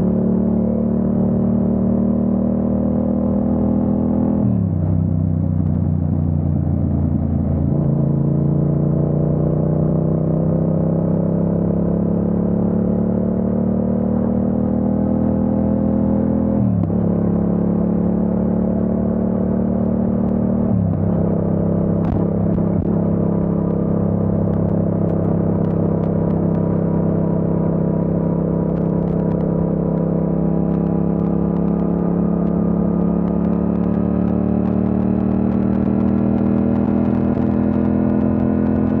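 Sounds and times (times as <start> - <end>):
motorcycle engine accelerating: 0.0 - 39.0.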